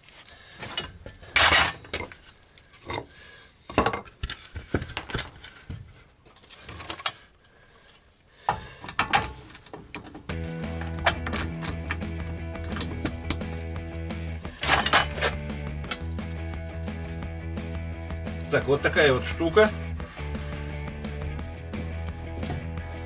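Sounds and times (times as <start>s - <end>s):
background music: 10.3s - 23.0s.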